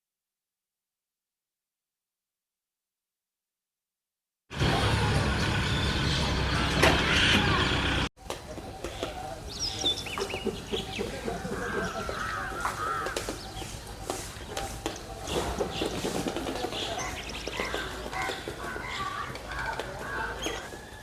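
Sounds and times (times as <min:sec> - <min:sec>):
loud dense mix of sound: 0:04.5 - 0:08.1
birds calling at a colony: 0:04.6 - 0:21.0.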